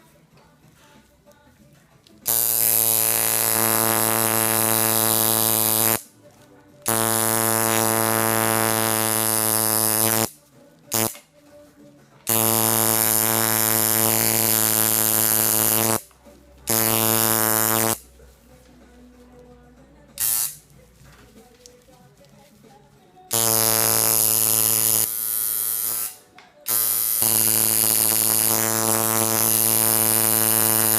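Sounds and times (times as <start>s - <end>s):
tattoo machine buzzing: 2.3s - 6.0s, 6.9s - 11.2s, 12.3s - 16.1s, 16.7s - 18.0s, 20.2s - 20.6s, 23.3s - 30.9s.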